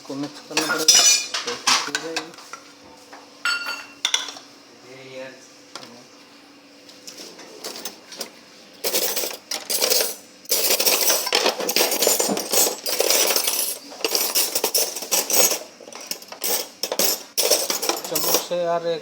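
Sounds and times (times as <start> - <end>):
metal dishes clattering: 0.5 - 2.1, 8.9 - 18.6.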